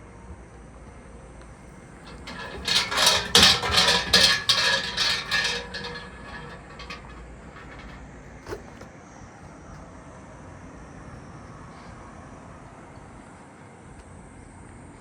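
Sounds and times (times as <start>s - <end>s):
light metallic ringing: 2.1s - 8.8s
metallic jangling and clattering: 2.1s - 8.8s.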